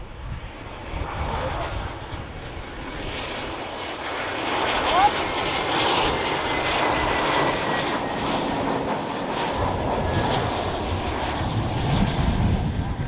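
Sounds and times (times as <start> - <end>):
jet engines running: 0.0 - 13.0
deep rumble: 9.6 - 13.0.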